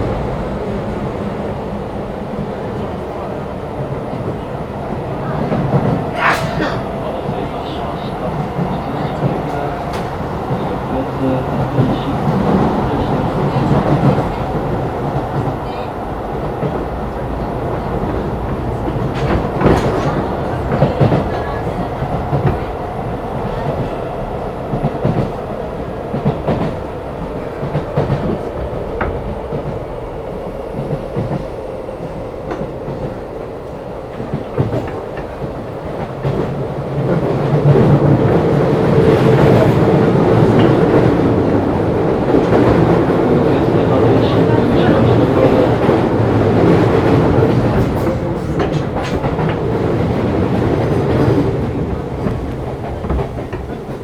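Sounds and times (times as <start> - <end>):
train rolling rumble: 0.0 - 54.0
wheels clacking over rail joints: 34.1 - 54.0.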